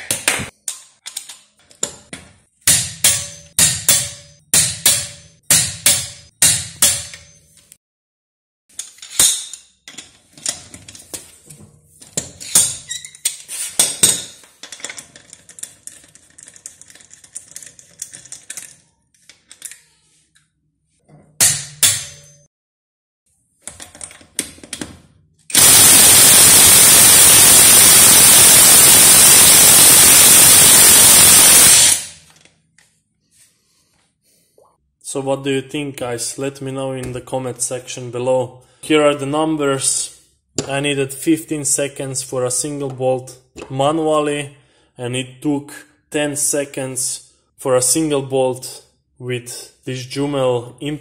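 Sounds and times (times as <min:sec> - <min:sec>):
impact wrench hammering: 0:02.6 - 0:07.4, 0:21.4 - 0:22.4, 0:25.5 - 0:32.2.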